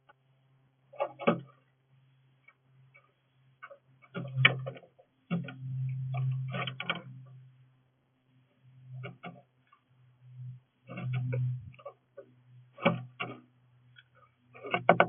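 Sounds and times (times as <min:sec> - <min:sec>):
steady low hum: 0:00.0 - 0:15.0
birds pecking on a feeder: 0:00.9 - 0:01.7, 0:08.7 - 0:09.9, 0:10.8 - 0:15.0.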